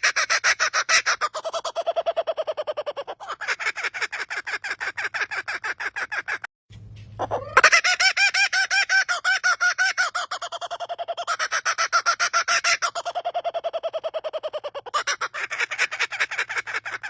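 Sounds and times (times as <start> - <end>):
bird calling fast pitched notes: 7.0 - 17.0.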